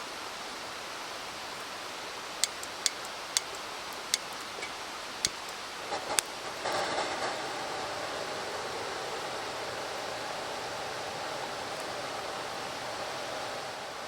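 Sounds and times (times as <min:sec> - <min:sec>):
rustling hiss: 0:00.0 - 0:07.5
campfire crackling: 0:01.6 - 0:06.8.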